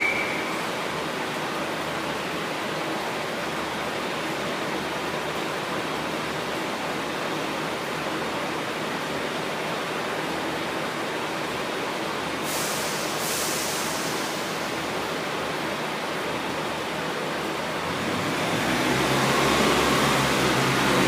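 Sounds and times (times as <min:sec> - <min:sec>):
high hiss of air: 0:12.4 - 0:14.9.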